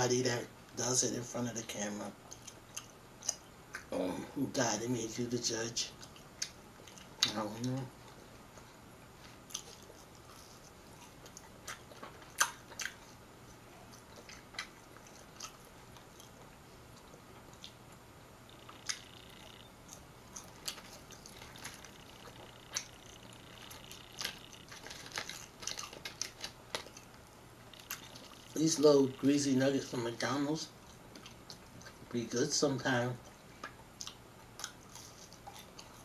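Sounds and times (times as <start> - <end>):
person chewing food: 2.2 - 4.0, 5.9 - 28.6, 30.7 - 32.1, 33.2 - 36.0
mouth clicks and smacks: 11.0 - 13.1.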